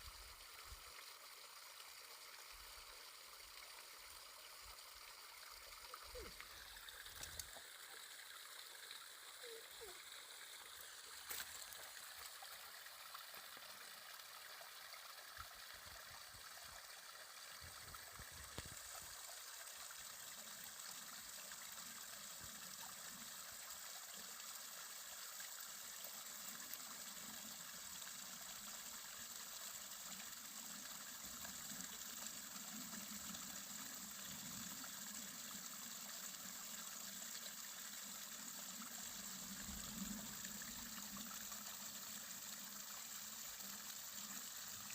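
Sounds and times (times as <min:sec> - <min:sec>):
running water: 0:00.0 - 0:44.9.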